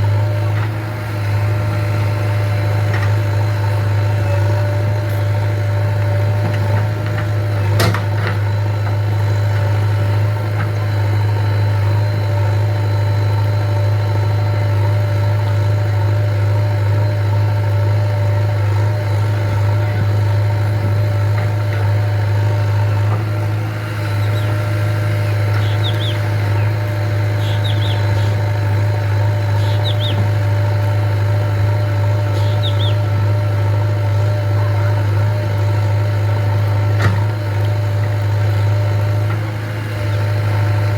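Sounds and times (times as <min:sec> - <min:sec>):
diesel engine droning: 0:00.0 - 0:40.9
bird chirps: 0:24.1 - 0:24.6, 0:25.5 - 0:28.4, 0:29.5 - 0:30.4, 0:32.3 - 0:33.1.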